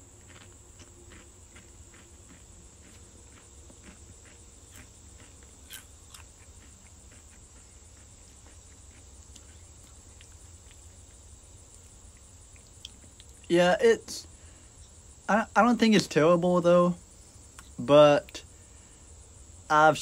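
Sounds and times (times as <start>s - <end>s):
person crunching crisps: 0.2s - 11.9s.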